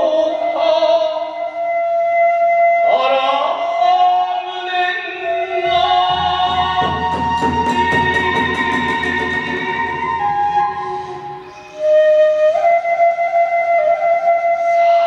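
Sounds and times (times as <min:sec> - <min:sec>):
sliding melodic line: 0:05.3 - 0:12.3
drum: 0:05.4 - 0:11.9
hand cymbals striking: 0:06.0 - 0:11.9.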